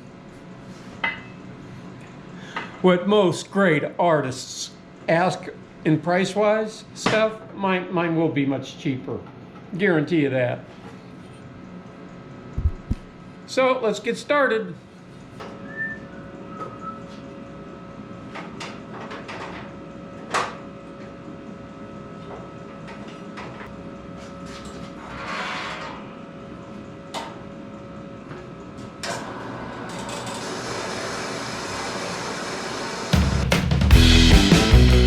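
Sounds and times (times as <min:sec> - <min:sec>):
steady machine noise: 0:29.2 - 0:35.0.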